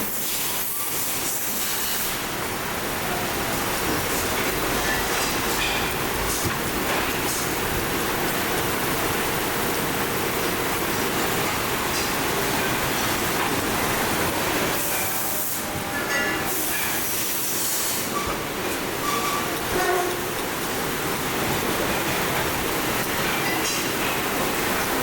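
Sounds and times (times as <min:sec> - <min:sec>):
factory machinery noise: 0:00.0 - 0:25.0.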